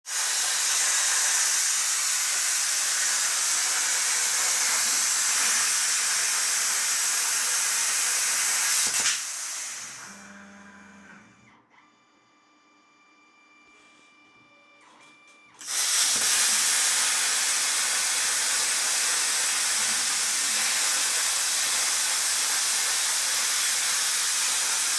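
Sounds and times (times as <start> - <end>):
plasma cutter hissing: 0.1 - 10.0, 15.6 - 24.9
plasma cutter switch click: 8.8 - 9.3.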